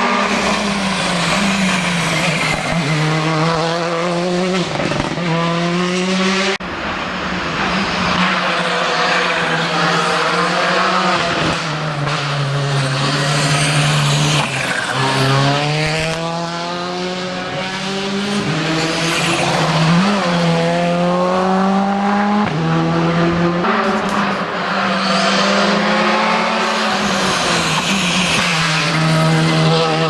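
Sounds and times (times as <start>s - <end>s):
rally car engine accelerating: 0.0s - 30.0s.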